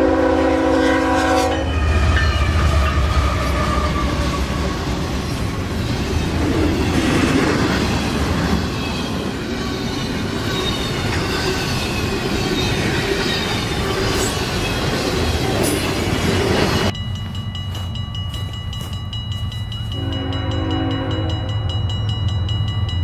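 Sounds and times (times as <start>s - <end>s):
train wheels rumbling on rail: 0.0s - 23.0s
wheel squeal: 8.6s - 16.9s.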